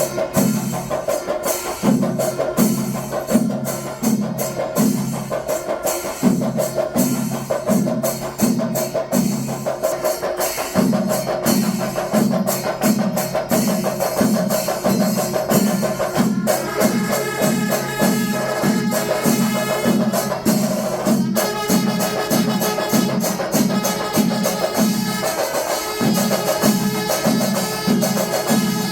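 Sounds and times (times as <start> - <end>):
deep drum beat: 0.0 - 28.9
drum and cymbal strokes: 0.0 - 28.9
wind instrument notes: 16.1 - 28.9.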